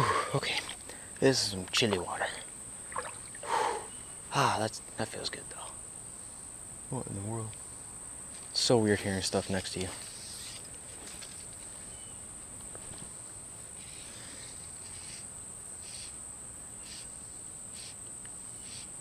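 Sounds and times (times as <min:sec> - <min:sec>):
short buzzy insect calls: 0:00.0 - 0:04.5, 0:10.0 - 0:12.2, 0:12.8 - 0:19.0
insects trilling: 0:00.0 - 0:19.0.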